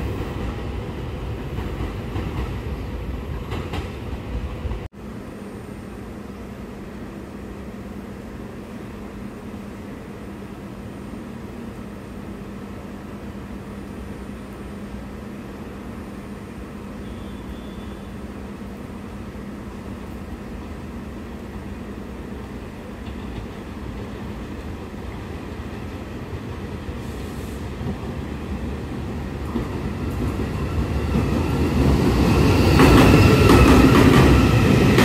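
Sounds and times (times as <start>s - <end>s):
train running rumble: 21.8s - 35.0s.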